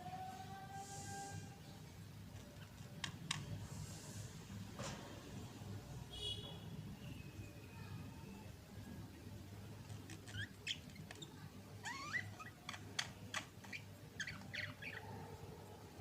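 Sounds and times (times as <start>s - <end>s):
budgerigars chirping: 13.6s - 15.0s.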